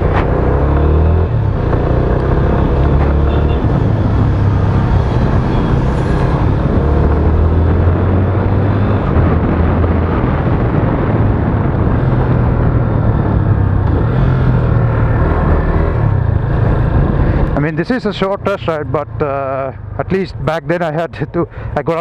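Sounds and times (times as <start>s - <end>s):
wind noise on microphone: 0.0s - 17.6s.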